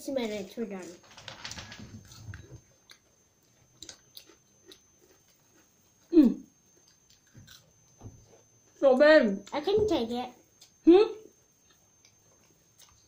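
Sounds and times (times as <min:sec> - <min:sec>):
people chewing crunchy food: 0:01.9 - 0:08.7, 0:11.6 - 0:13.0.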